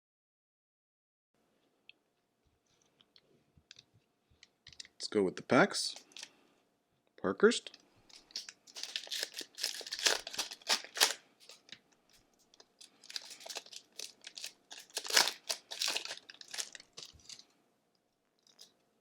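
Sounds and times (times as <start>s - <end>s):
wrapper tearing and crinkling: 8.1s - 11.8s, 12.7s - 17.5s.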